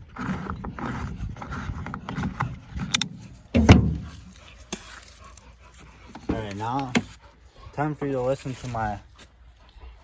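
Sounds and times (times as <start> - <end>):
knocking and handling noise: 2.0 - 4.8
heavy thump: 3.5 - 4.3.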